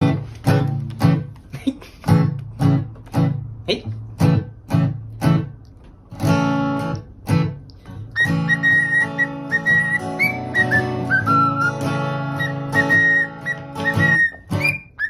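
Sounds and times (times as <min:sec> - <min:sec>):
acoustic guitar strumming: 0:00.0 - 0:15.0
parrot whistling a tune: 0:08.1 - 0:15.0.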